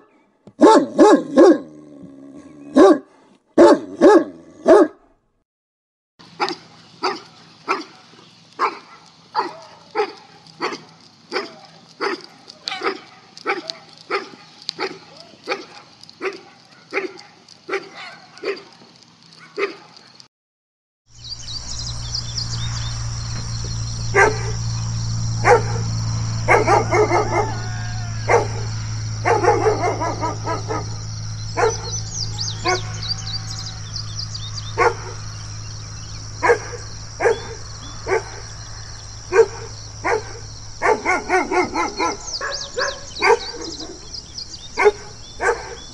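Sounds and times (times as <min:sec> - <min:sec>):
dog barking: 0:00.0 - 0:01.7, 0:02.7 - 0:05.1, 0:06.4 - 0:18.8, 0:19.4 - 0:20.0, 0:24.1 - 0:24.6, 0:25.4 - 0:32.0, 0:32.6 - 0:33.0, 0:34.8 - 0:35.2, 0:36.4 - 0:38.4, 0:39.3 - 0:44.1, 0:44.8 - 0:45.9
low hum: 0:21.2 - 0:45.9.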